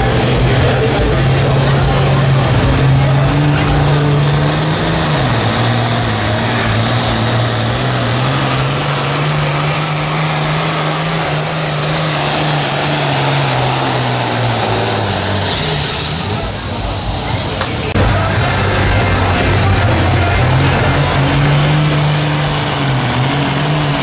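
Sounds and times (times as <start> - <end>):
tractor engine running at full throttle: 0.0 - 24.0.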